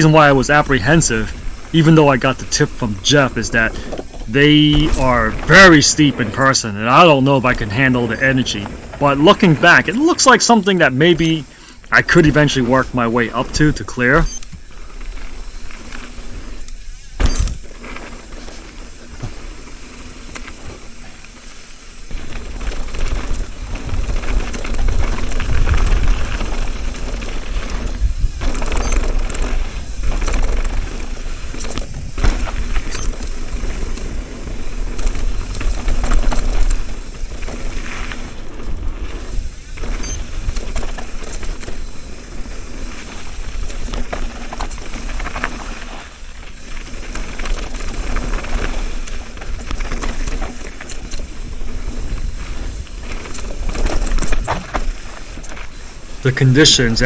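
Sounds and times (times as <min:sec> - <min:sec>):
bike rattling over bumps: 0:00.0 - 0:57.0
tyres rolling over dirt: 0:00.0 - 0:57.0
wind buffeting microphone: 0:22.0 - 0:43.9.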